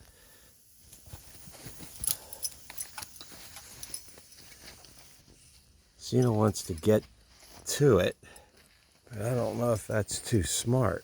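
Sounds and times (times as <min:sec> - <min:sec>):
light clicks taps and jingles: 0:01.5 - 0:05.0, 0:06.1 - 0:09.1.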